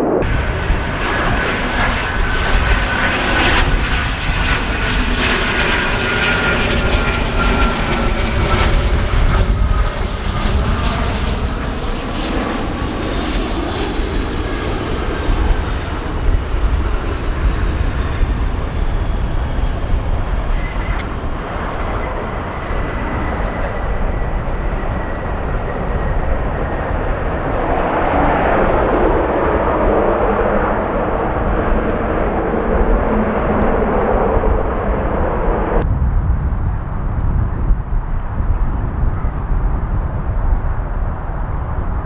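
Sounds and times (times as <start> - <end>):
jet engines rushing and whining: 0.0 - 42.0.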